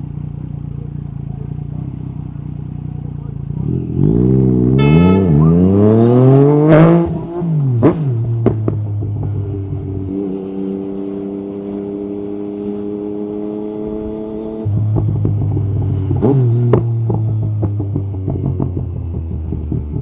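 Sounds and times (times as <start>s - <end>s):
exhaust pops and crackles: 7.8s - 9.4s, 14.8s - 20.0s.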